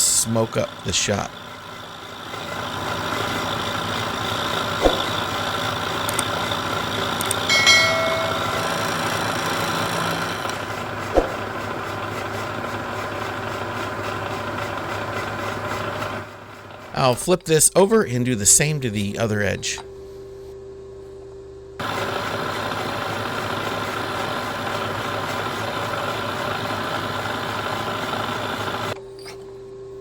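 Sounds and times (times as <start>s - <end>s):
milling machine cutting steel: 0.0s - 17.3s
high ringing tone: 7.3s - 9.5s.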